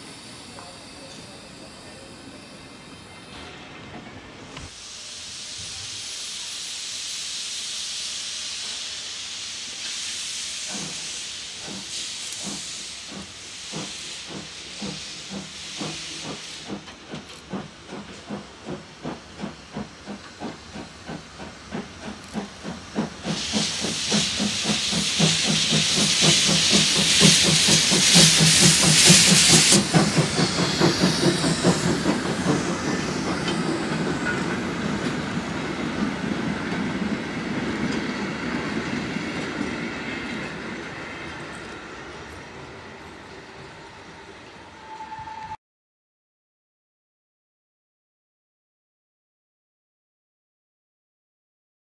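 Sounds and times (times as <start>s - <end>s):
steam hissing: 0.0s - 45.4s
loud blast of steam: 4.7s - 16.9s, 17.9s - 37.4s
locomotive exhaust chuffs: 10.7s - 37.1s.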